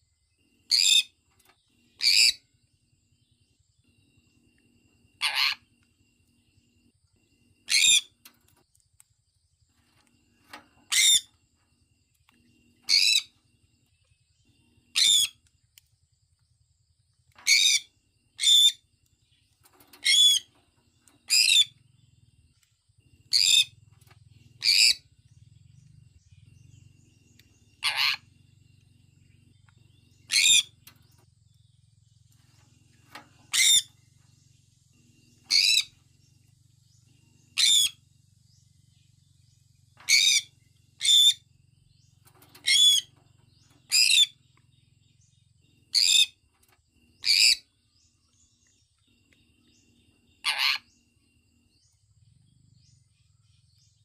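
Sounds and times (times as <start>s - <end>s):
parrot shrill chirping: 2.0s - 2.4s, 5.2s - 5.6s, 7.7s - 8.1s, 15.0s - 15.4s, 20.0s - 20.5s, 27.8s - 28.3s, 30.3s - 30.7s, 33.5s - 33.9s, 35.5s - 35.9s, 37.6s - 38.0s, 50.4s - 50.8s.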